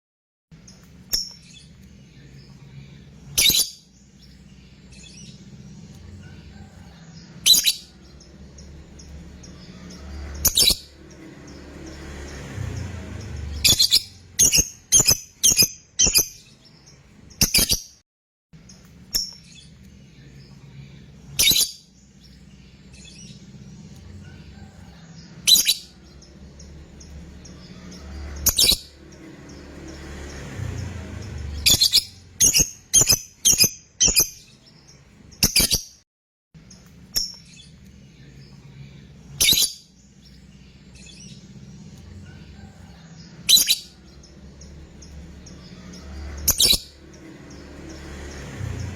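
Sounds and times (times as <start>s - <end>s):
lovebird shrill calls: 3.3s - 3.8s.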